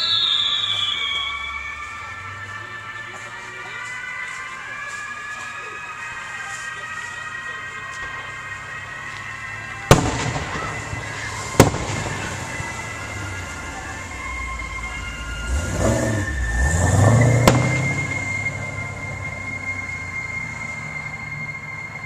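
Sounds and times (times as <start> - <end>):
fireworks booming: 9.0 - 18.9
low rumble of firework bursts: 9.8 - 15.1.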